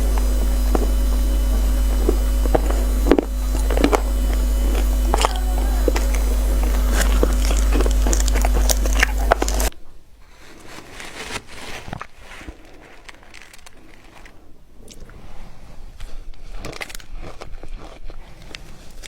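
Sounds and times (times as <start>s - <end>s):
frozen ice being chewed: 0.0s - 9.7s, 10.3s - 19.0s
loud low hum: 0.0s - 9.7s.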